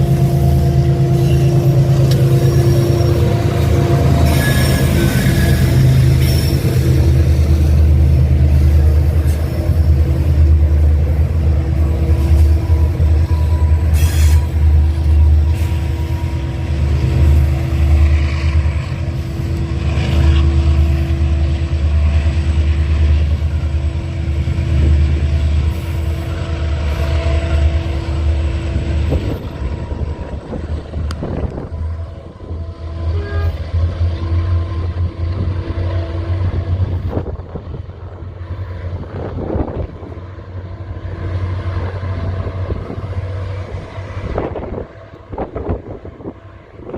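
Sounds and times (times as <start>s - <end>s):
locomotive engine rumble: 0.0s - 46.9s.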